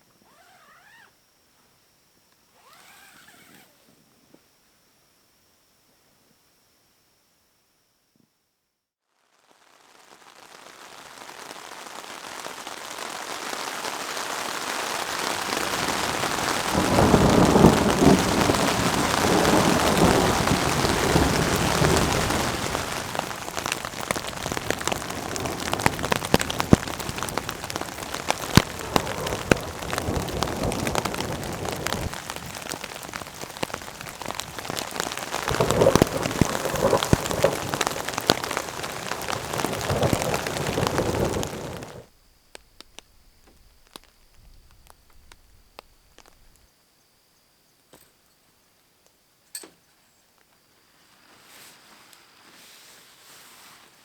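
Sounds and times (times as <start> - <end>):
steady rain: 9.2 - 46.6
raindrops pattering: 9.3 - 46.7
thunder rumbling: 14.8 - 42.1.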